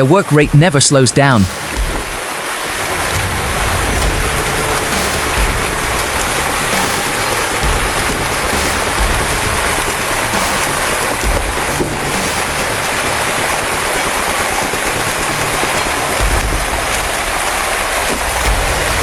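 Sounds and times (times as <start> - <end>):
rushing water: 0.0 - 19.0
low engine rumble: 1.6 - 19.0.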